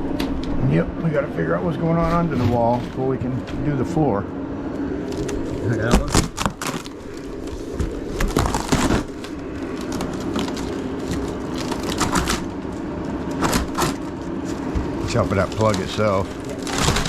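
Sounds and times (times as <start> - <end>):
wood cracking and snapping: 5.1 - 17.0.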